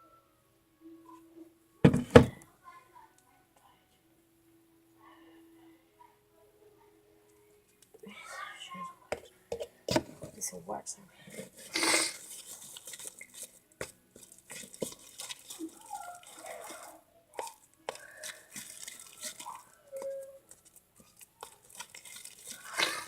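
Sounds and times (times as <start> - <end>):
slime squelching by hand: 11.3 - 23.0.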